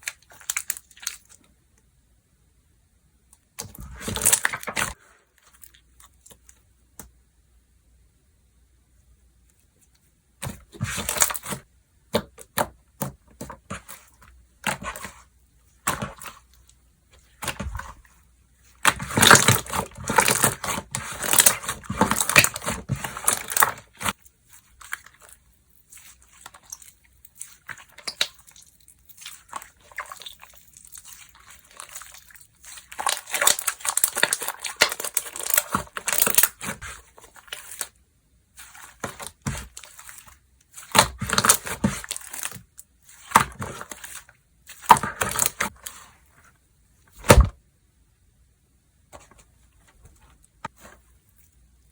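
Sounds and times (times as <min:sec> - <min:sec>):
slime squished by hand: 0:17.2 - 0:46.2.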